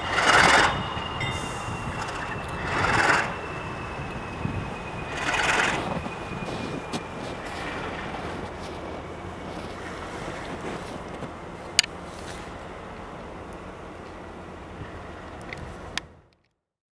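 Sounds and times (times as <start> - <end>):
wind gust on microphone: 0.0 - 11.8
high train squeal: 0.0 - 16.2
train rumbling by: 0.0 - 16.3.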